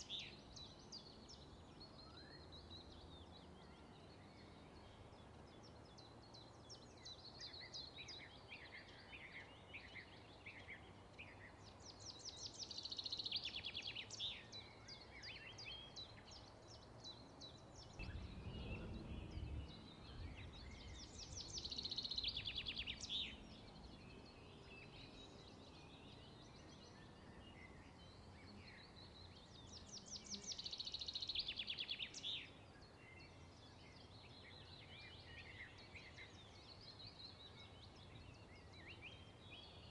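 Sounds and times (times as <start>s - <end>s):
bird chirps: 0.0s - 39.9s
bird trilled song: 0.0s - 39.9s
faint background hiss: 0.0s - 39.9s
low rumble: 18.0s - 20.9s.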